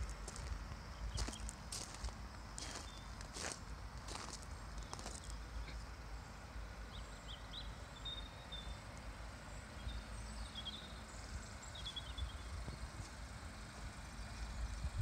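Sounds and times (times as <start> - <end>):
small birds chirping: 0.3 - 15.0.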